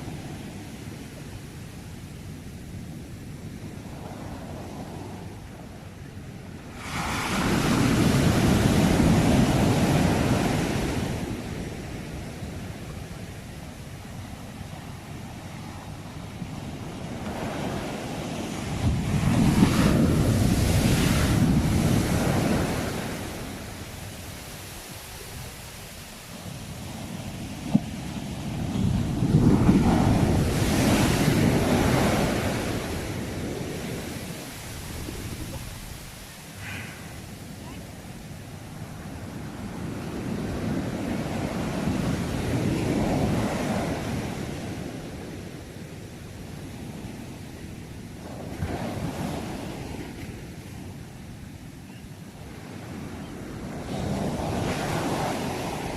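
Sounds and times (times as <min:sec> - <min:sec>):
sea waves washing onto shore: 0:00.0 - 0:51.0, 0:52.4 - 0:55.9
wind rumbling on microphone: 0:00.0 - 0:55.9
sea wave breaking: 0:29.3 - 0:37.6.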